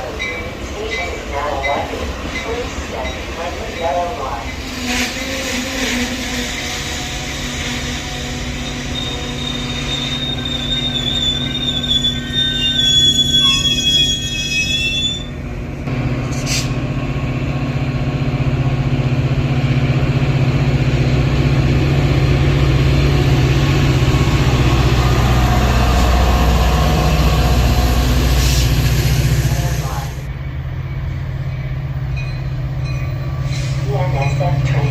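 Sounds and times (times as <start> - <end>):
train wheel squeal: 4.5 - 15.4, 30.8 - 34.4
diesel engine rumble: 15.3 - 30.3.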